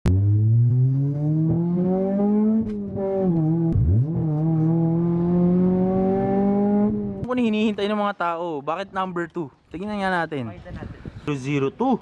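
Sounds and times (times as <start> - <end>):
car engine accelerating: 0.0 - 7.3.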